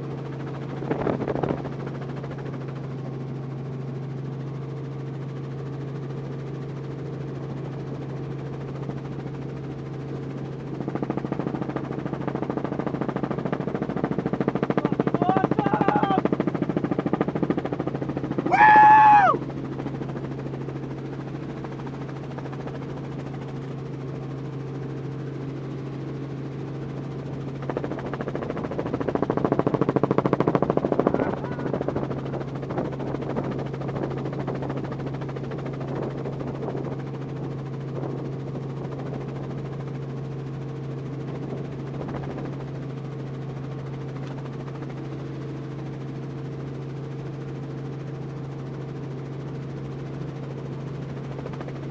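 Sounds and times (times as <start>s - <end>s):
helicopter cabin drone: 0.0s - 51.9s.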